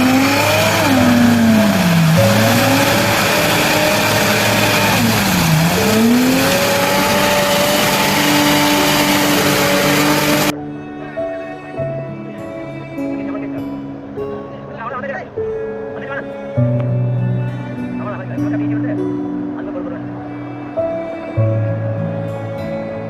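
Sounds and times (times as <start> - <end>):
engine revving: 0.0 - 10.5
loud rushing noise: 0.0 - 10.5.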